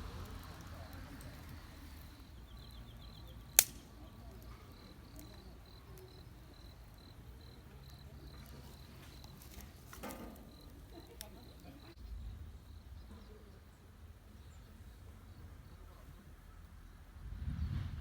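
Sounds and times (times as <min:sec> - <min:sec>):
insects chirping: 0:00.0 - 0:17.1
sharp loud snap: 0:03.6 - 0:04.0.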